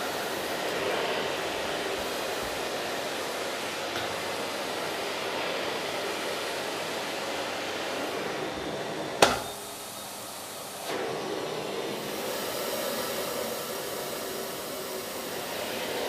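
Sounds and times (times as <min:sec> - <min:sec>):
vacuum cleaner running: 0:00.0 - 0:16.0
sharp knock: 0:09.2 - 0:09.5.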